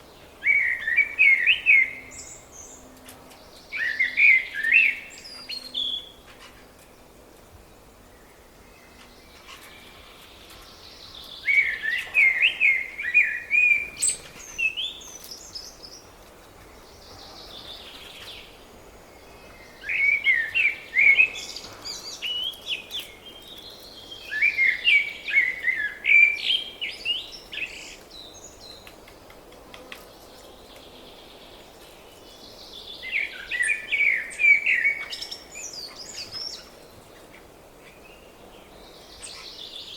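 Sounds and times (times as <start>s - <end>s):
songbird warbling: 19.5s - 28.4s.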